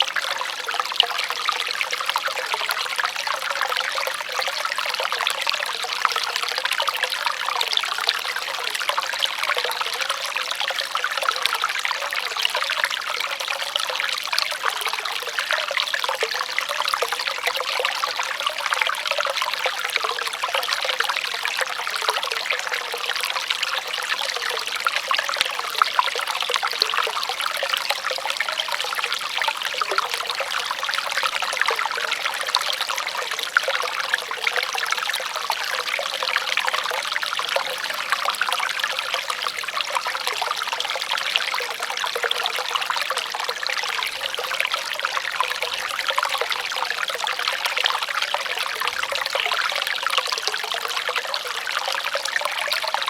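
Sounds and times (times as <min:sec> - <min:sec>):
water trickling and splashing: 0:00.0 - 0:53.0.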